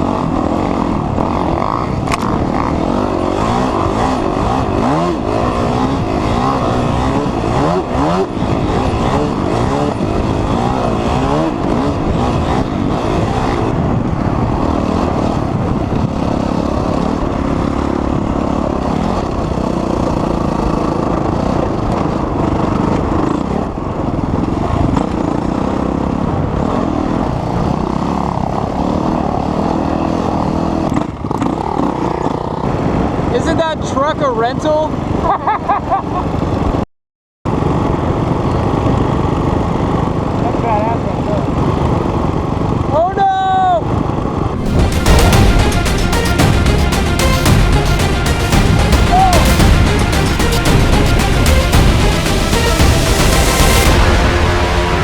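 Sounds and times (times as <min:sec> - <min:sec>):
dirt bike engines revving: 0:00.0 - 0:35.3.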